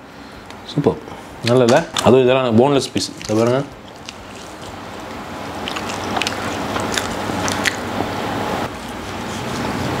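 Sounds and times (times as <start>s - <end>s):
chewing food close up: 3.0s - 7.9s.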